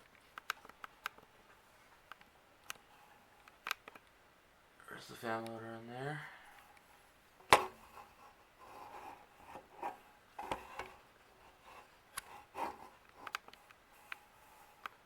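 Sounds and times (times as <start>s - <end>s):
light rubbing: 7.6s - 14.9s.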